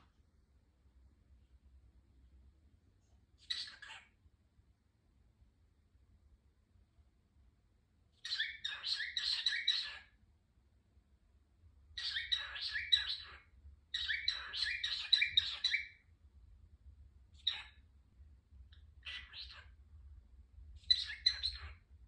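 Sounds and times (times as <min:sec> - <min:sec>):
cockatiel chirping: 0:03.4 - 0:04.1, 0:08.2 - 0:10.2, 0:12.0 - 0:16.0, 0:17.4 - 0:17.8, 0:18.7 - 0:19.8, 0:20.8 - 0:21.9.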